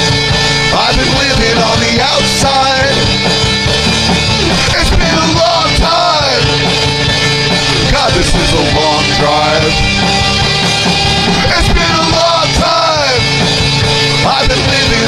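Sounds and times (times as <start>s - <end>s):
rock band playing: 0.0s - 15.0s
melodic lead line bending in pitch: 0.1s - 15.0s.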